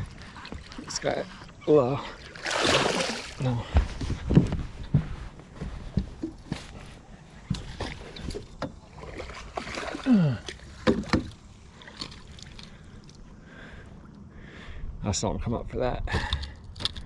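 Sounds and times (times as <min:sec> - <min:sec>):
light water sounds: 0:00.0 - 0:03.8, 0:07.4 - 0:13.3.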